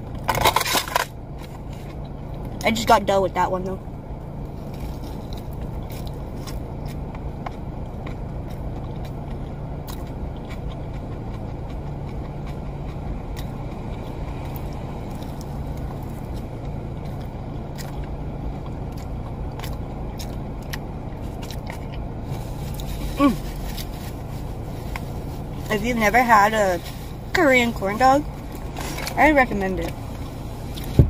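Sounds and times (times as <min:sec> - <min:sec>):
crunchy bites and chewing: 0:00.0 - 0:02.6, 0:04.2 - 0:25.6
car idling hum: 0:00.0 - 0:31.0.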